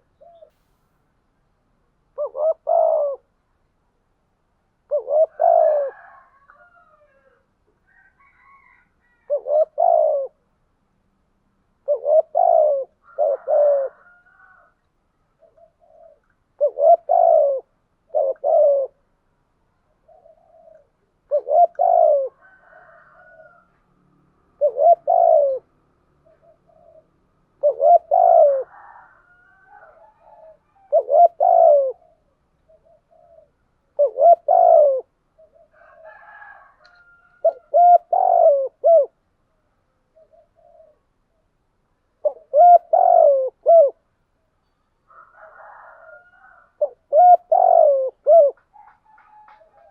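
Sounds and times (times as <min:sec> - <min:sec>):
dove cooing: 0:00.0 - 0:00.6, 0:02.1 - 0:03.4, 0:04.8 - 0:10.5, 0:11.8 - 0:14.8, 0:15.4 - 0:19.1, 0:19.8 - 0:23.8, 0:24.5 - 0:39.2, 0:40.1 - 0:41.5, 0:42.2 - 0:44.0, 0:45.1 - 0:49.9
faint bird calls: 0:00.0 - 0:01.1, 0:02.1 - 0:03.6, 0:11.8 - 0:23.9, 0:24.6 - 0:41.6, 0:42.2 - 0:49.9.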